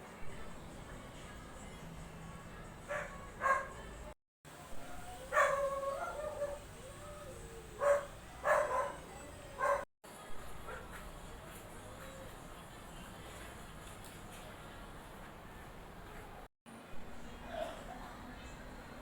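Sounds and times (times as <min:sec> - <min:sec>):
dog barking: 0:02.9 - 0:03.8, 0:04.8 - 0:06.7, 0:07.8 - 0:09.9, 0:10.6 - 0:11.0.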